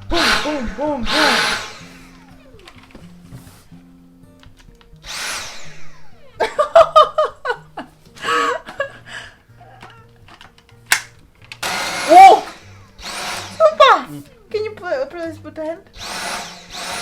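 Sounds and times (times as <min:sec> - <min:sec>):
short noise bursts: 0:00.0 - 0:02.3
sharp click: 0:10.9 - 0:11.6.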